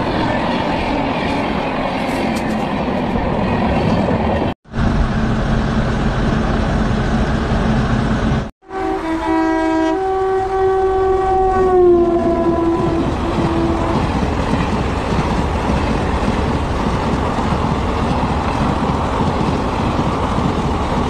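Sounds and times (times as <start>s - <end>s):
train rumbling past: 0.0s - 21.0s
train horn blast: 8.6s - 14.1s.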